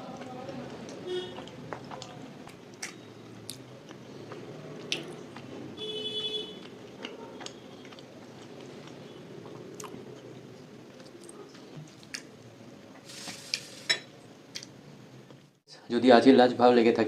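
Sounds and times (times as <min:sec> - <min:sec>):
chewing soft food: 0:00.0 - 0:05.6, 0:06.6 - 0:13.0.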